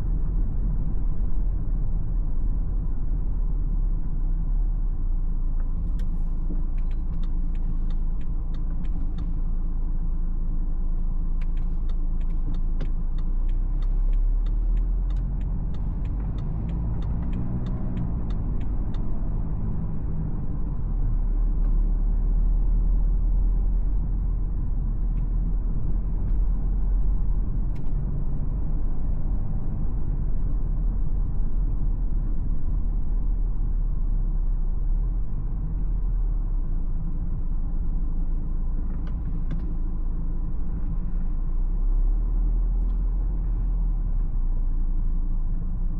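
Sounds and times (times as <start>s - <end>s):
car engine and tyre rumble: 0.0s - 45.9s
turn signal ticking: 5.5s - 34.4s, 37.1s - 41.3s.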